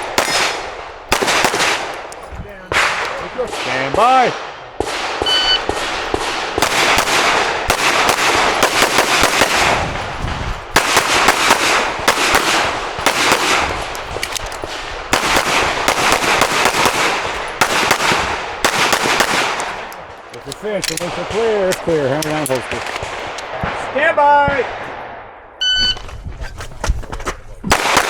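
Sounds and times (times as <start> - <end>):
pistol firing rapid shots: 0.0 - 20.2, 27.7 - 28.0
shot timer beep: 5.2 - 5.6, 25.6 - 26.0.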